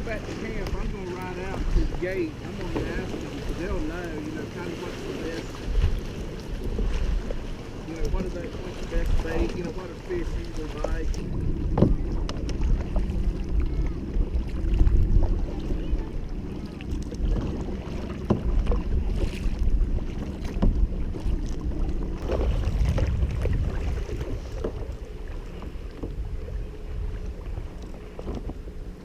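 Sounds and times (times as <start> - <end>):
water sounds: 0.0 - 29.0
wind buffeting microphone: 0.0 - 29.0
light knocks on boat: 2.4 - 3.6, 10.5 - 13.2, 17.3 - 19.5, 20.2 - 20.9, 24.2 - 26.2, 27.7 - 28.7.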